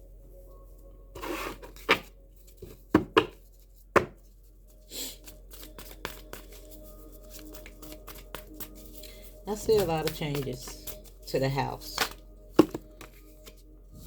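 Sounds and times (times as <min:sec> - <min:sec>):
cards rustling: 0:04.2 - 0:13.6
cards tapped down on table: 0:12.0 - 0:13.2.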